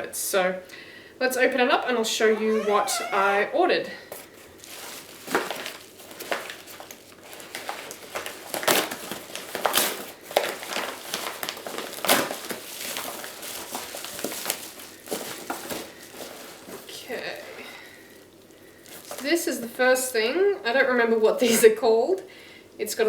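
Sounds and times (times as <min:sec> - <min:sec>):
packaging crinkling and ripping: 0:04.6 - 0:19.3.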